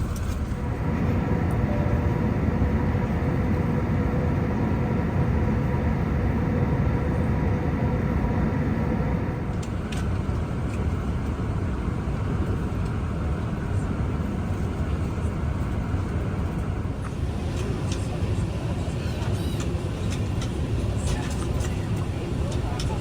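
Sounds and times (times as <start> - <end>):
faint steady tones: 0.0 - 9.7
airliner cabin roar: 0.0 - 23.0.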